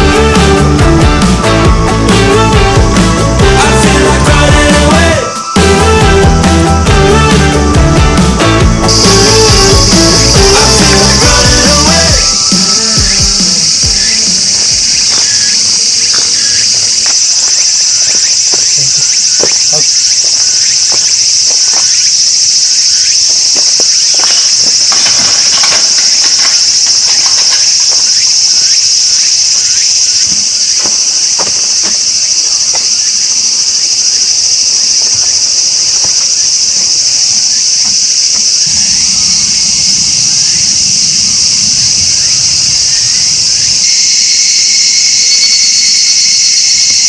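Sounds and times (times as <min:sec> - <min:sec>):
insects chirring: 0:00.0 - 0:47.0
low rumble: 0:38.6 - 0:44.2.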